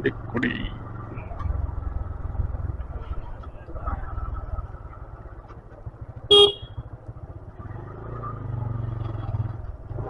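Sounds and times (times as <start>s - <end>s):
motorcycle engine running: 0.0s - 10.0s
vehicle horn toot: 6.3s - 6.8s.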